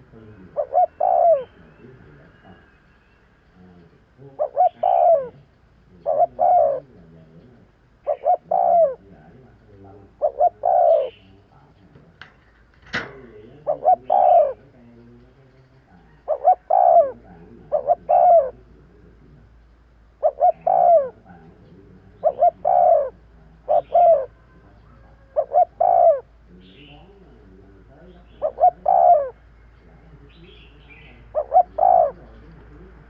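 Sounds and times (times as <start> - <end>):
dove cooing: 0.0 - 33.0
sharp click: 11.9 - 13.5.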